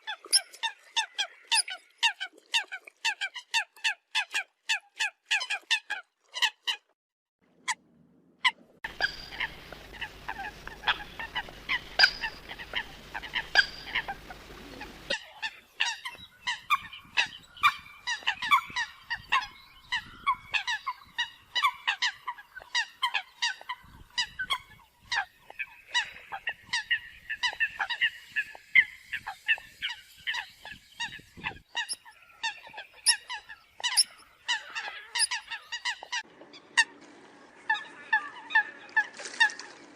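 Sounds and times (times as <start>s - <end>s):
coots honking calls: 8.9s - 16.2s.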